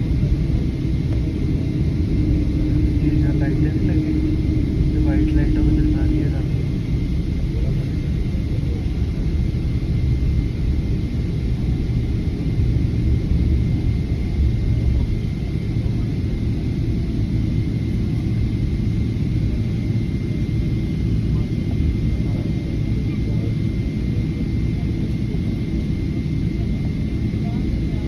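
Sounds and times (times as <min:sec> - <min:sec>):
steady high tone: 0:00.0 - 0:08.1
jet engines rumbling: 0:00.0 - 0:28.0.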